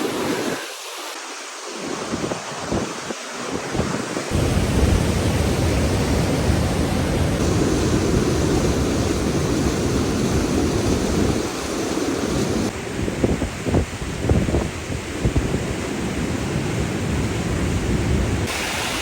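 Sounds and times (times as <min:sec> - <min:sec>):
waterfall roaring: 0:04.3 - 0:12.7, 0:18.4 - 0:19.0.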